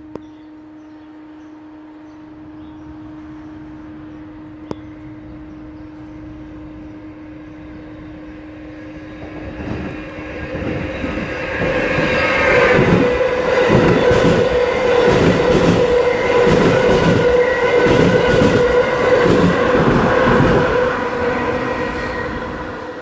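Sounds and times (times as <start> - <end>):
train humming and rumbling: 0.0 - 23.0.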